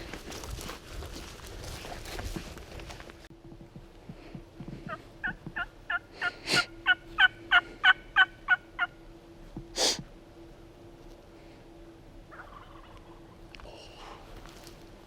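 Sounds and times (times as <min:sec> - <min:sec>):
harsh turkey call: 0:04.9 - 0:09.0, 0:12.3 - 0:13.2
turkey yelping: 0:04.9 - 0:09.0, 0:12.3 - 0:13.3.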